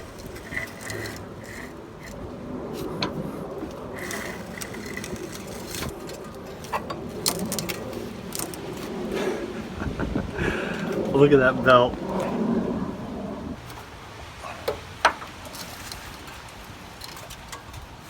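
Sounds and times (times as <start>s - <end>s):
seized engine turning over: 0.0s - 9.0s
clicks and scraping: 0.0s - 9.3s, 14.5s - 18.0s.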